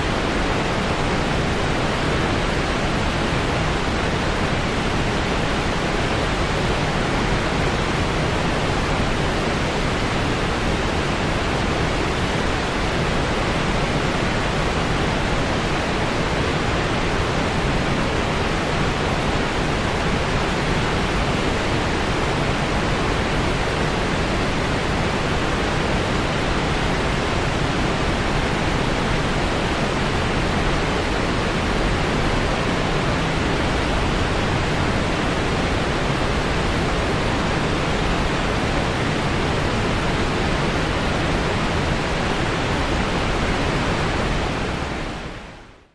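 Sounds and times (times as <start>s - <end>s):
steady white noise hiss: 0.0s - 45.9s.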